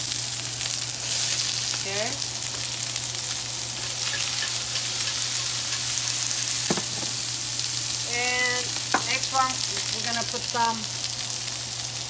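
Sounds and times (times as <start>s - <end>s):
food sizzling in hot oil: 0.0s - 12.0s
tongs turning food: 2.5s - 6.6s.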